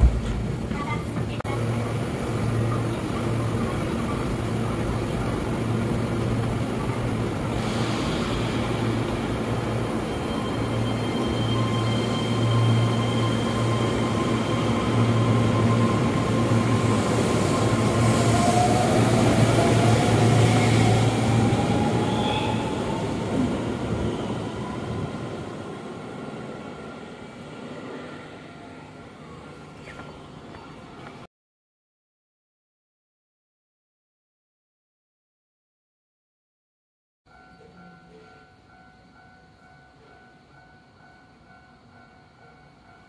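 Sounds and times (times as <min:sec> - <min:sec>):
electric train humming: 0:00.0 - 0:31.0.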